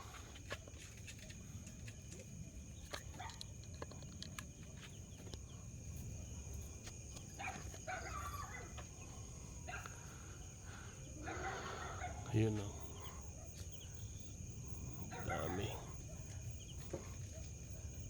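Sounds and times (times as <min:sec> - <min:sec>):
small ticks and scratches: 0:00.0 - 0:10.3, 0:12.3 - 0:18.0.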